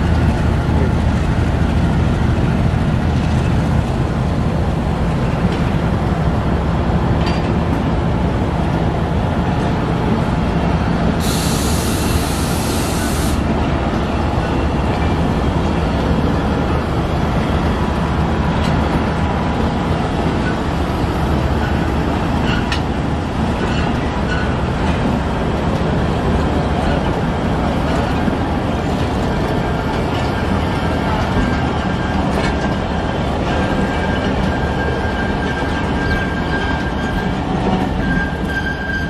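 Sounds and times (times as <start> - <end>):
train wheels rumbling on rail: 0.0 - 39.0
air hiss: 11.2 - 13.4.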